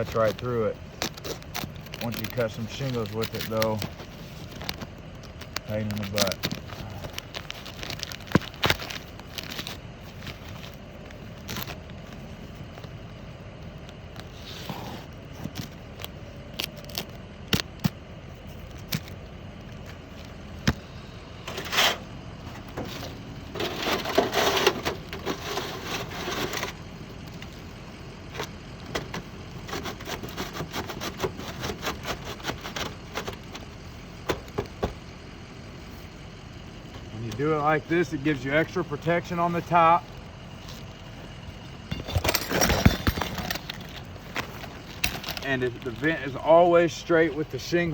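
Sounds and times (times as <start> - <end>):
shingles being scraped: 21.5 - 26.8, 29.6 - 33.6.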